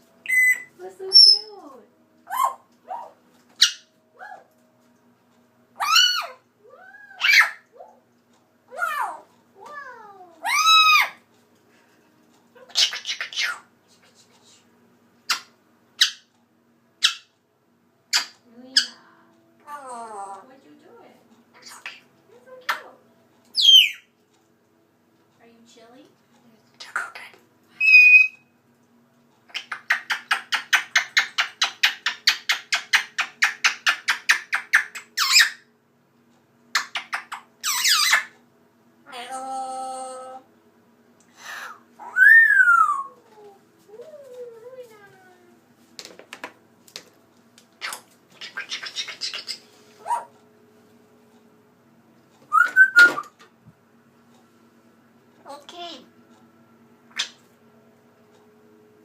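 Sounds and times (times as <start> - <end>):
bird whistle: 0.2 - 1.4, 23.6 - 24.1, 27.8 - 28.5, 52.5 - 53.3
bird chirp: 0.2 - 1.5, 2.3 - 3.9, 23.6 - 24.1, 27.8 - 28.5
pet bird chirping: 0.2 - 1.6, 2.3 - 4.4, 7.1 - 8.0, 10.4 - 11.2, 12.6 - 13.7, 15.2 - 16.3, 17.0 - 17.4, 18.1 - 19.0, 23.5 - 24.2, 26.8 - 28.5, 29.5 - 35.7, 36.7 - 38.4, 42.0 - 43.2, 47.8 - 50.3, 52.5 - 53.3
bird squawk: 7.2 - 7.6
bird chattering clicks: 29.5 - 35.5, 47.8 - 49.6.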